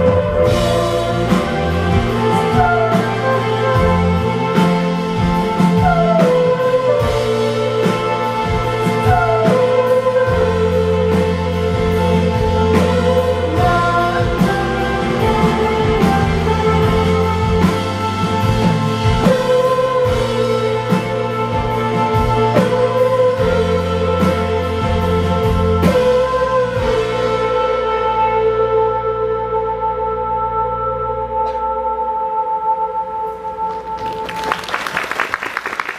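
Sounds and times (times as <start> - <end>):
steady drum beat: 0.0 - 27.5
rock band playing live: 0.0 - 30.2.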